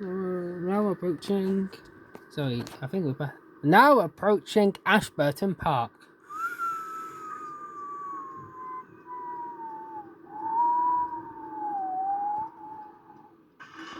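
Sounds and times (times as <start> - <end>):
bus drivetrain whine: 6.3 - 9.8, 10.4 - 12.8, 13.6 - 13.9.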